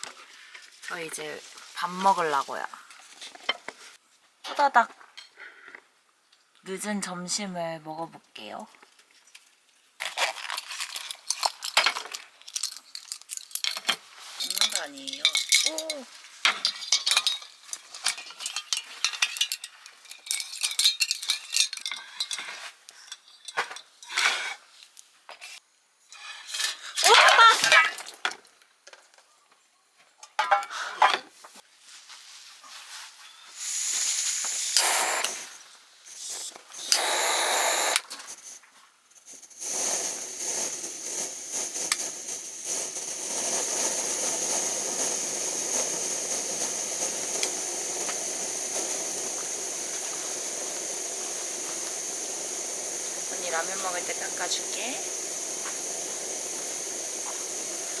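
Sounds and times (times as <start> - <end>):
steady hiss: 33.3 - 58.0.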